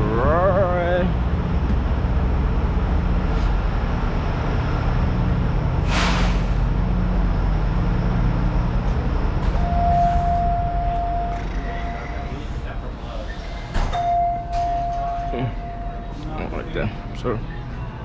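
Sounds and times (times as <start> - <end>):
steady beep tone: 9.6 - 12.5.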